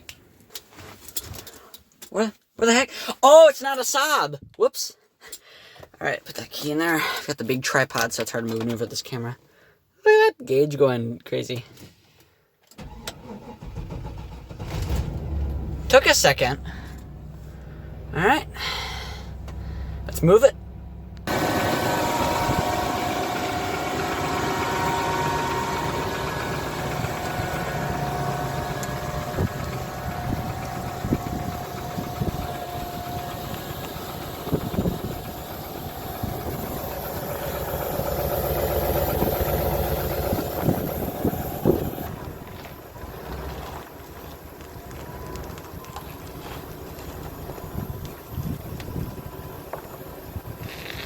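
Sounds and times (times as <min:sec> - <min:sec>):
truck engine running: 0:12.9 - 0:51.0.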